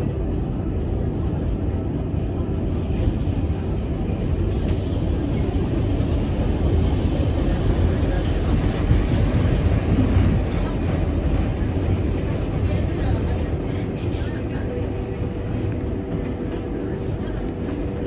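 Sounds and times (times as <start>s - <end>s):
train rumbling: 0.0s - 18.0s
high wheel squeal: 3.9s - 9.3s.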